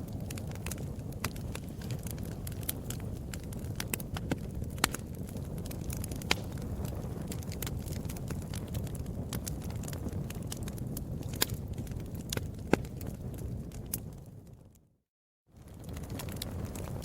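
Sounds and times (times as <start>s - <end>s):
wood fire crackling: 0.0s - 14.9s, 15.6s - 17.0s
low rumble of flames: 0.0s - 17.0s.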